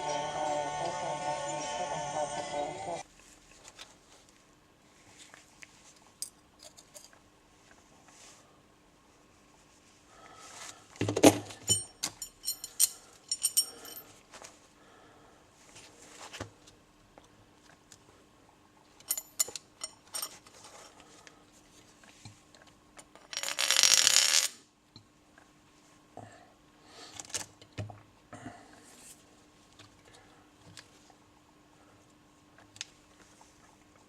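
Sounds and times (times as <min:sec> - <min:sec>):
metal tools clinking and scraping: 0:06.2 - 0:07.2, 0:11.4 - 0:14.1, 0:19.0 - 0:21.0.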